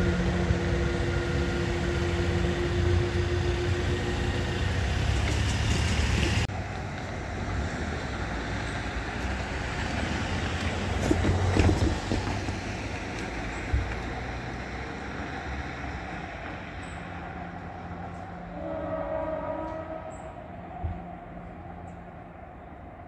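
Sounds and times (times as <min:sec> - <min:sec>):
distant train horn: 0:00.0 - 0:05.9, 0:17.0 - 0:22.2
train engine and wheel noise: 0:00.0 - 0:23.0.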